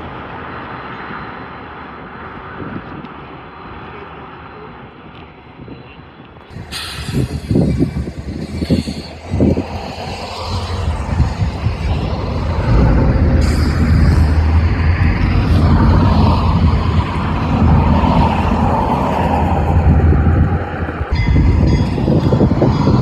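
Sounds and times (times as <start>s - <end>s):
heavy low thumps: 6.5s - 23.0s
train rumbling: 6.5s - 23.0s.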